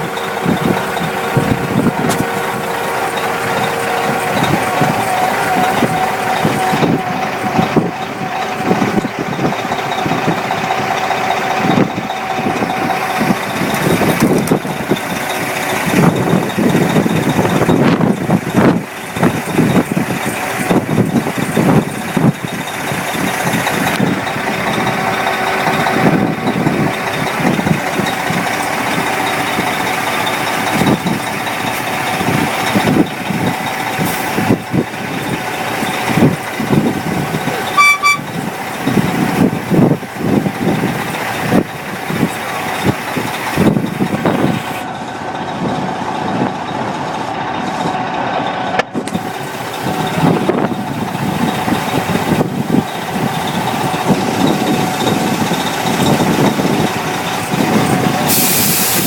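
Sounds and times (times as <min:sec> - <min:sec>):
traffic rumble: 0:00.0 - 0:59.0
vehicle engine running: 0:00.0 - 0:59.0
short high beep: 0:37.8 - 0:38.3.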